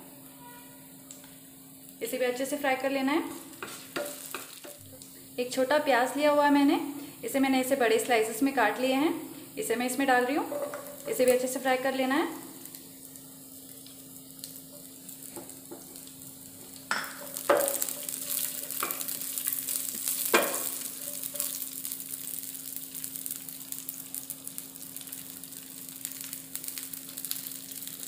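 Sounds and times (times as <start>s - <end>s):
food sizzling in hot oil: 0.0s - 28.0s
wooden spatula knocking pan: 3.6s - 4.8s, 16.9s - 19.2s, 20.0s - 21.6s.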